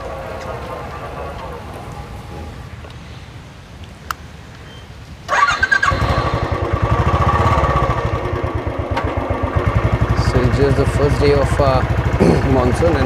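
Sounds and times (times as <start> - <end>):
starter motor whine: 5.3 - 12.2.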